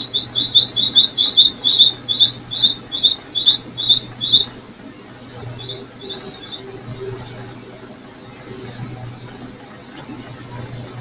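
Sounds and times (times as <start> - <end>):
bird chirping: 0.0 - 4.5, 5.4 - 7.6.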